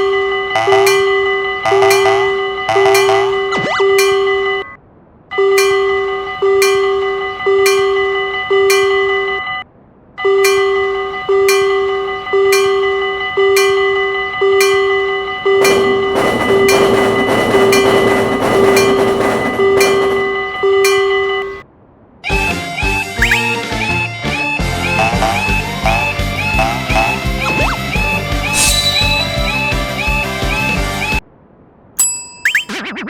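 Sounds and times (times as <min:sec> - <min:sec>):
passing train rushing: 0:00.0 - 0:04.6, 0:05.6 - 0:09.4, 0:10.4 - 0:21.7, 0:24.8 - 0:30.7
railroad crossing bell ringing: 0:00.0 - 0:04.8, 0:05.4 - 0:09.6, 0:10.3 - 0:21.6, 0:24.7 - 0:30.7, 0:32.0 - 0:32.7.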